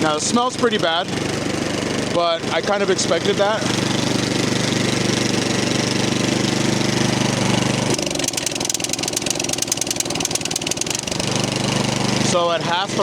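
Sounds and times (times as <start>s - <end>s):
engine ticking: 0.0s - 12.8s
snowblower engine running: 0.0s - 13.0s.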